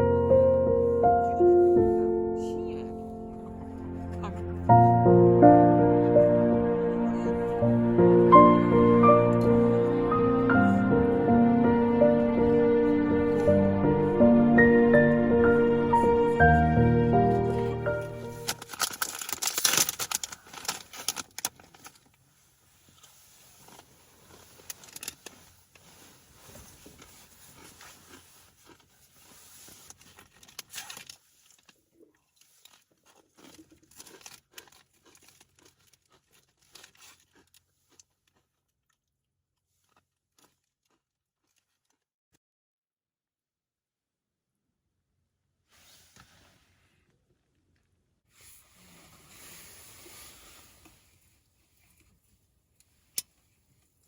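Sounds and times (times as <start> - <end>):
background music: 0.0 - 18.8
crackling and crunching clicks: 17.5 - 22.2, 23.0 - 25.8, 26.8 - 39.2.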